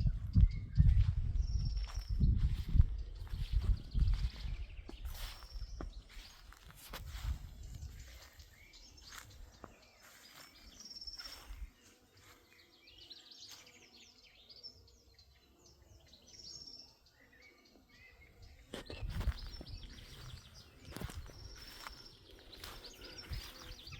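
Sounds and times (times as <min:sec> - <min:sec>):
small birds chirping and trilling: 0:00.0 - 0:23.9.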